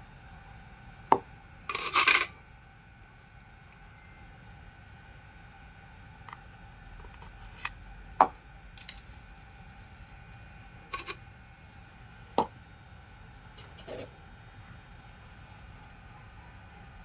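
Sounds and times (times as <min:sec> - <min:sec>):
metal parts and tools knocking: 0:08.8 - 0:09.2.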